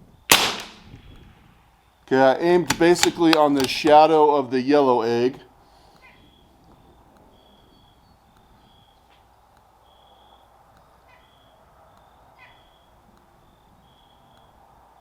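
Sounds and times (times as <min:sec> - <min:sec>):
low outdoor background noise: 0:00.0 - 0:15.0
faint bird chirps: 0:05.9 - 0:14.6.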